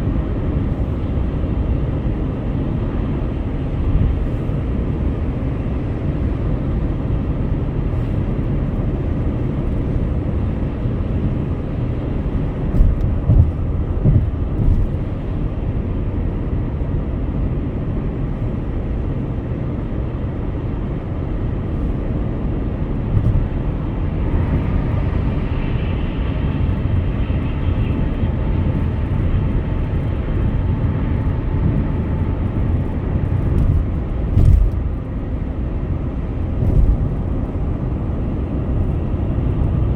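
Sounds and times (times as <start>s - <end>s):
car road and engine noise: 0.0s - 39.9s
short bumps: 12.6s - 15.2s
faint whine: 21.6s - 39.9s.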